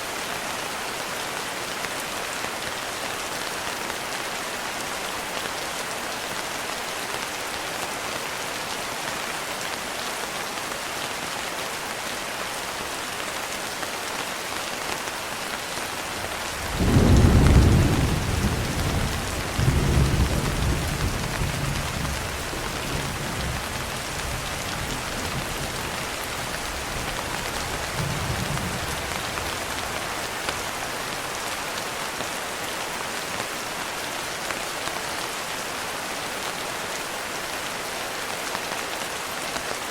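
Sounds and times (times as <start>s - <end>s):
rain hiss: 0.0s - 39.9s
thunder rumbling: 16.6s - 30.6s.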